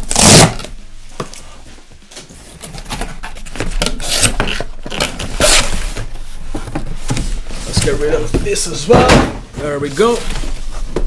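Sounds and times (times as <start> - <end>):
cardboard box rustling and scraping: 2.3 - 11.0.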